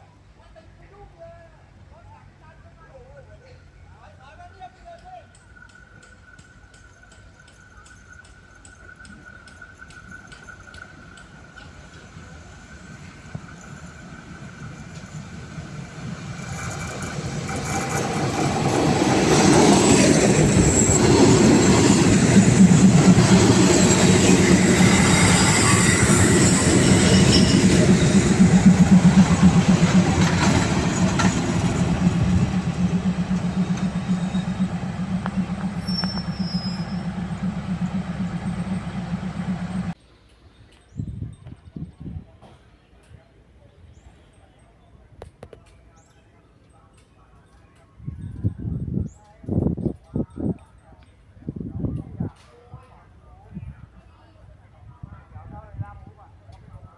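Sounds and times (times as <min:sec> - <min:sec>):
train passing: 0:04.6 - 0:40.0
steady low drone: 0:22.1 - 0:40.0.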